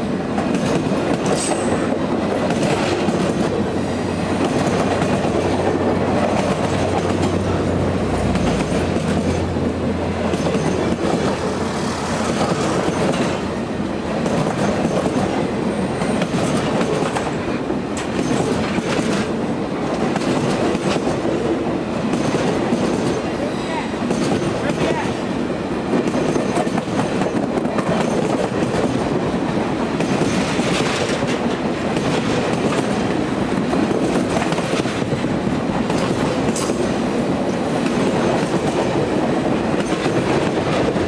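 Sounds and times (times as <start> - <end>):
train wheels rumbling on rails: 0.0 - 41.0
wheels clicking over rail joints: 0.3 - 13.6, 16.0 - 21.4, 29.9 - 41.0.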